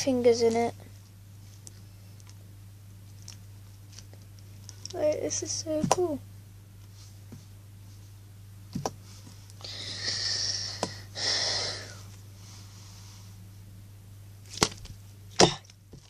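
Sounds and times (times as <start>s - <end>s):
faint steady hum: 0.0s - 16.0s
breathy puffs of air: 9.6s - 13.2s.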